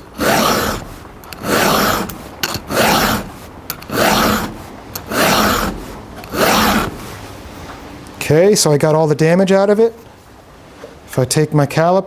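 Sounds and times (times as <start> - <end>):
round file rasping on chainsaw cutter: 0.0 - 7.1.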